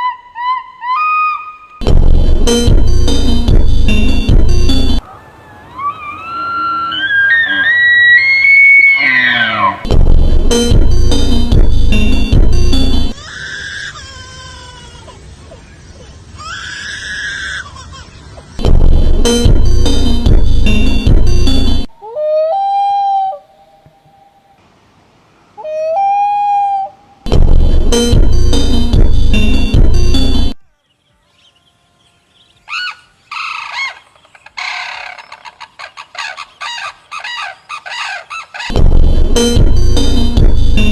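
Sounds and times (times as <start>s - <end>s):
loud music: 1.8s - 5.0s, 9.9s - 13.2s, 18.6s - 21.9s, 27.3s - 30.6s, 38.8s - 40.9s
bird calling: 5.0s - 9.9s, 25.4s - 27.2s, 32.5s - 38.8s
animal screaming: 5.1s - 9.9s, 16.4s - 18.0s, 32.7s - 38.8s.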